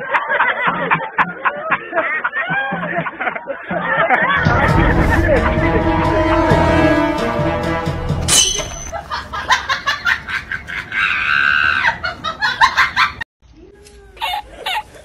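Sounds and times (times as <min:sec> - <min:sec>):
person laughing: 0:00.3 - 0:05.9
music: 0:04.4 - 0:08.8.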